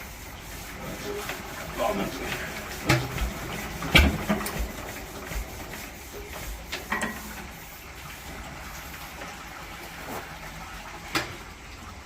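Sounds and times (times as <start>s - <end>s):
metal knocks and thumps from engine: 2.8s - 4.7s.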